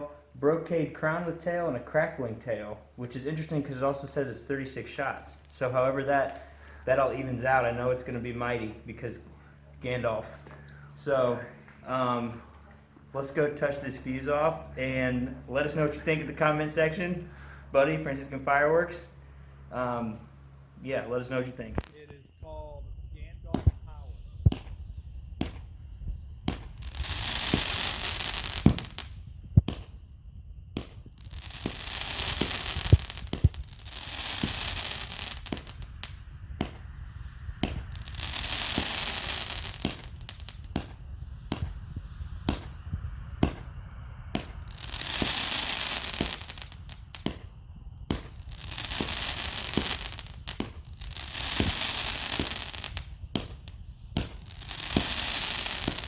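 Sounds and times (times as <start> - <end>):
firework crackling hiss: 3.0 - 11.2, 20.9 - 56.0
firework launch thumps and pops: 21.7 - 22.1, 23.5 - 30.0, 30.7 - 56.0.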